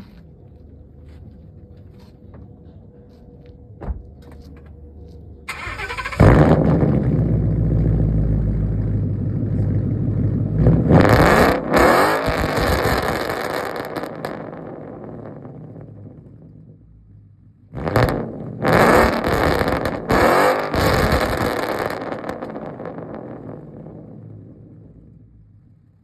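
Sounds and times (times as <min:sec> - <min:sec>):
loud engine idling: 0:05.5 - 0:10.6
car engine cranking and starting: 0:05.5 - 0:14.6
engine revving: 0:05.5 - 0:15.8, 0:17.7 - 0:24.1.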